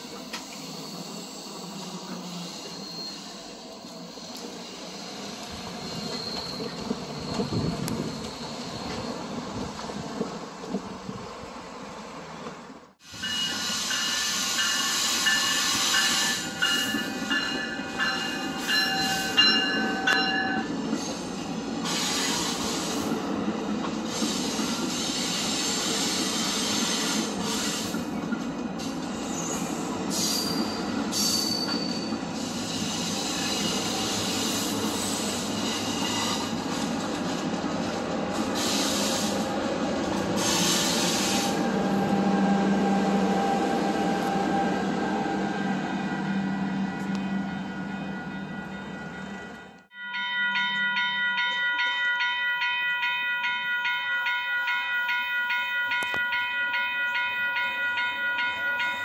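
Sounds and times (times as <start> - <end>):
wheel squeal: 0.0 - 9.7, 29.0 - 36.9
train rumbling on rails: 0.0 - 59.0.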